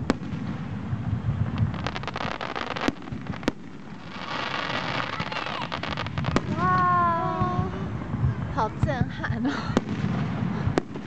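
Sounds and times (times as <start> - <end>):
sharp firework bangs: 0.0 - 8.5, 9.7 - 11.0
fireworks booming: 0.0 - 11.0
fireworks crackling: 0.0 - 11.0.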